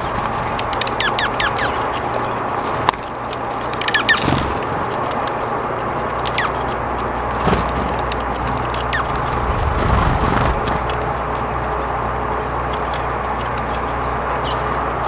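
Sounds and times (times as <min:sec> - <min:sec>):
light clicks and taps: 0:00.0 - 0:04.0
small birds chirping: 0:00.0 - 0:15.0
brief low rumble: 0:09.0 - 0:11.0.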